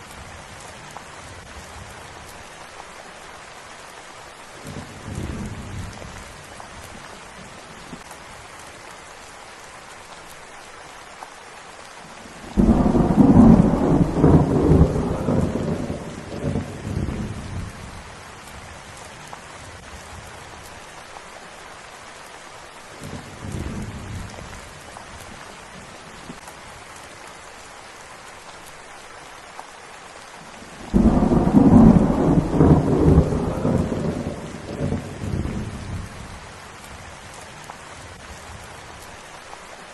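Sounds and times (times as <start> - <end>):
steady rain: 0.0 - 39.9
thunder rumbling: 12.4 - 18.1, 30.8 - 38.7.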